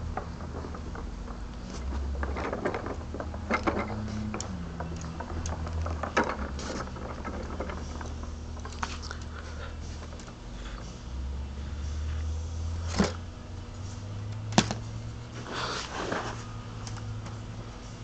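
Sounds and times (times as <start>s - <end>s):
plastic parts clicking and rattling: 0.0s - 9.4s
steady low hum: 0.0s - 18.0s.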